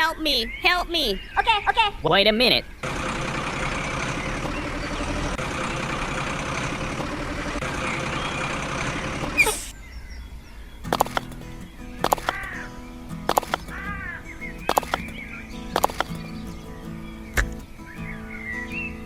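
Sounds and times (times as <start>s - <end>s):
small machine motor running: 2.8s - 9.7s.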